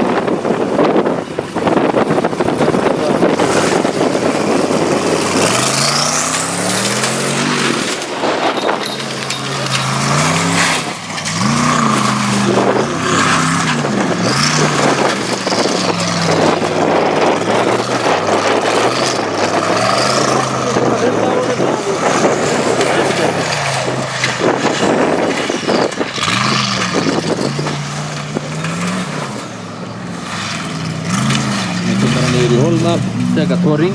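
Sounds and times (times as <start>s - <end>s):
truck engine revving hard: 0.0s - 33.9s
tyre and dirt noise: 0.0s - 33.9s.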